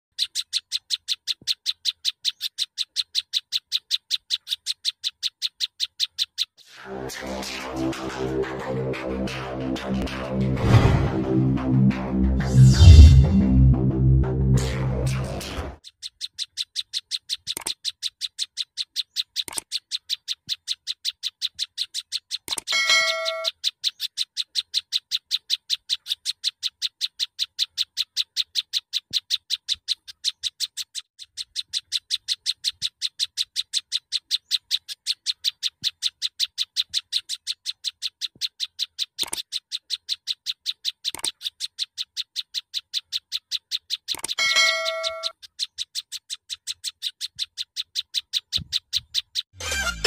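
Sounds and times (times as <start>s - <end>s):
songbird sharp chirps: 0.1s - 6.7s, 15.2s - 50.0s
bird call with ringing tones: 21.8s - 25.0s, 39.2s - 50.0s.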